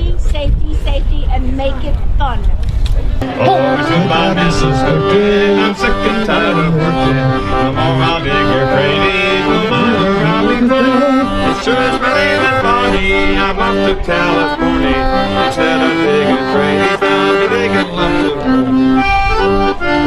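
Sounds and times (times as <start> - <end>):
accordion tune over chords: 3.2 - 20.0.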